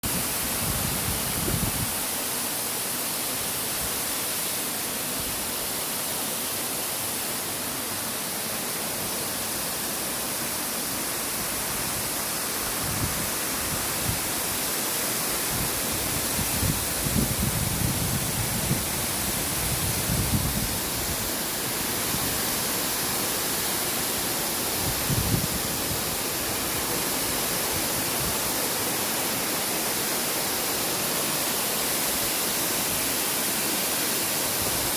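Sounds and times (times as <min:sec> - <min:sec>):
rain hissing: 0:00.0 - 0:34.9.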